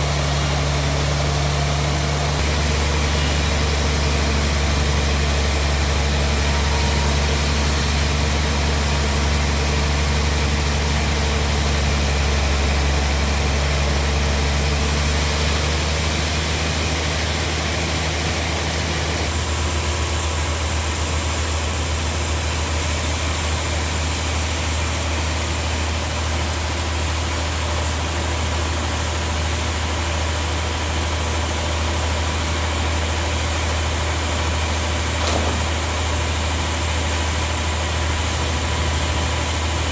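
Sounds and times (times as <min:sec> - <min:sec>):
bandsaw machinery droning: 0:00.0 - 0:39.9.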